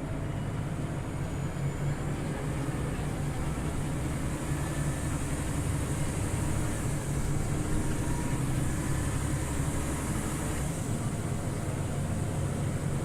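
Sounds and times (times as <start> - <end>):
bus engine drone: 0.0 - 13.0
road noise: 0.0 - 13.0.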